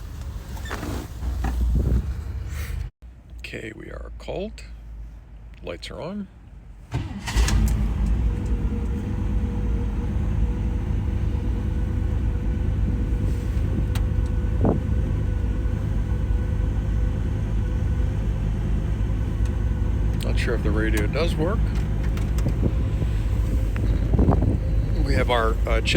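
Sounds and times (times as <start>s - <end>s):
car engine idling: 6.5s - 25.9s.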